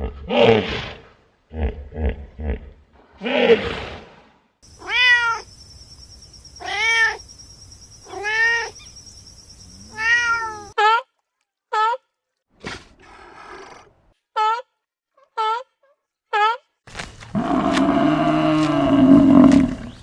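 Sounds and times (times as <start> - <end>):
cat meowing: 4.7 - 5.5, 9.9 - 10.8.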